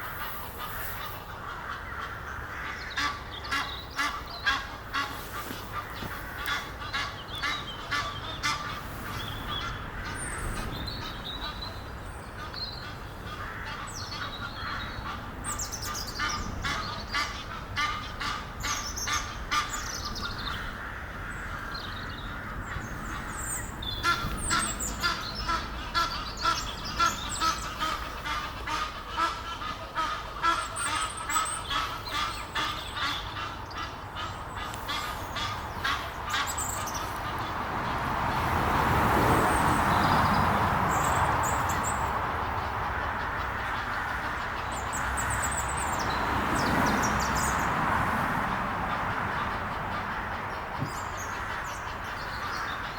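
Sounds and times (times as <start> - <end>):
geese honking: 0.0 - 11.7, 12.4 - 37.6.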